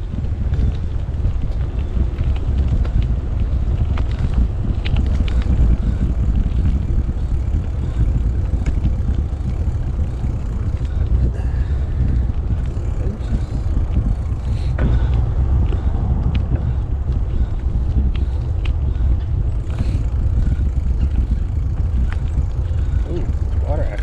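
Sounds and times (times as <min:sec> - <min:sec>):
bike clicks and rattles: 0:00.0 - 0:24.0
bike tyre noise on path: 0:00.0 - 0:24.0
wind buffeting microphone: 0:00.0 - 0:24.0.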